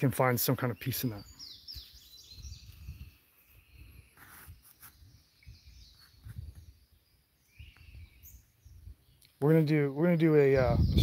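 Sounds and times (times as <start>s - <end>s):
bird chirps: 0.0s - 11.0s
low rumble on microphone: 10.6s - 11.0s.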